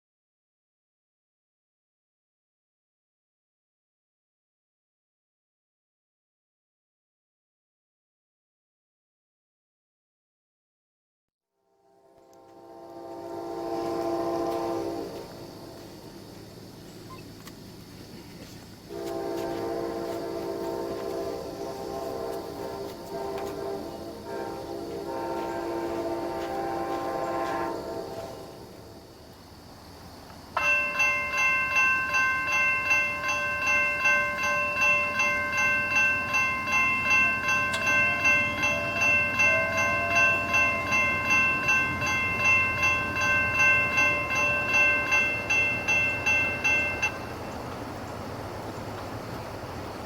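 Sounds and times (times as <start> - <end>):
train horn: 11.6 - 16.1, 18.9 - 29.1, 34.3 - 47.7
train rumbling past: 11.8 - 50.0
railroad crossing bell ringing: 18.9 - 28.8, 30.5 - 50.0.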